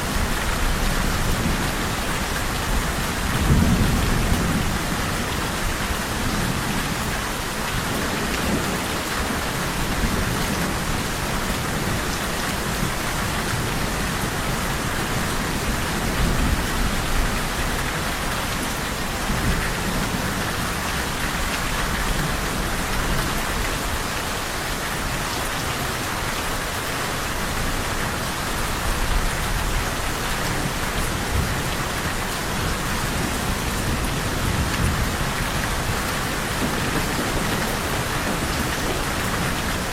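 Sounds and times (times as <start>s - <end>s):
steady rain falling: 0.0s - 39.9s
low rumble of thunder: 0.6s - 7.1s.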